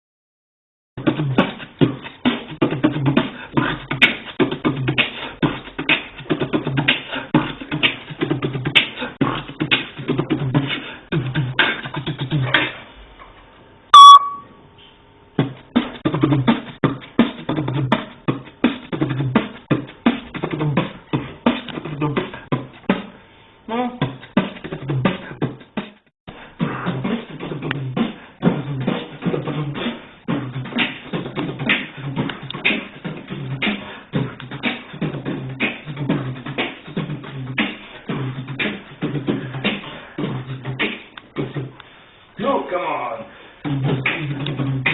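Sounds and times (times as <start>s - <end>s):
person beatboxing: 1.0s - 12.9s, 15.4s - 44.9s
parrot shrill call: 14.0s - 14.4s.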